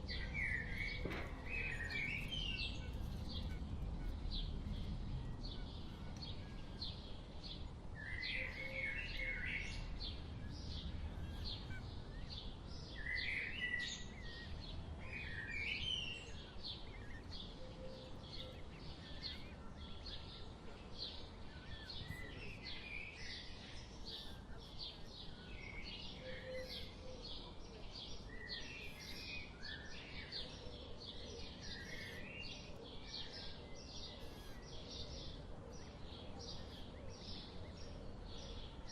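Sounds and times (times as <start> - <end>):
low outdoor rumble: 0.0 - 8.6, 9.2 - 13.0
small birds chirping: 0.0 - 38.9.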